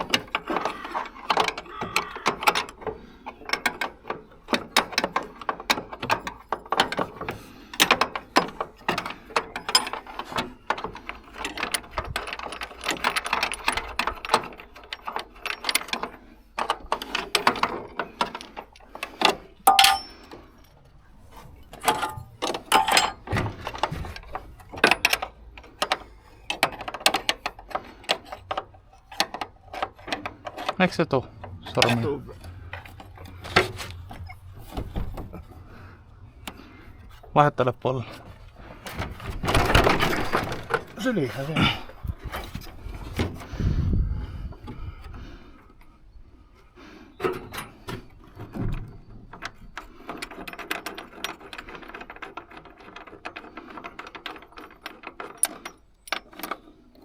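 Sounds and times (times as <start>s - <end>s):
metal tools clinking and rattling: 0.0s - 20.8s, 21.6s - 35.6s
metallic ring: 19.7s - 20.3s, 21.9s - 23.3s.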